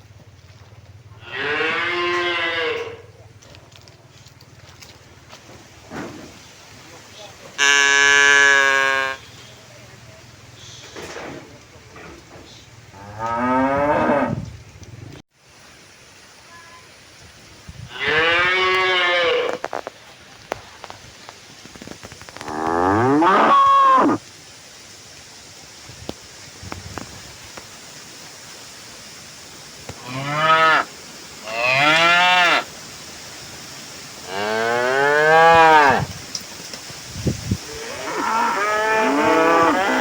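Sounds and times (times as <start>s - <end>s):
cattle mooing: 22.4s - 24.2s, 37.7s - 40.0s.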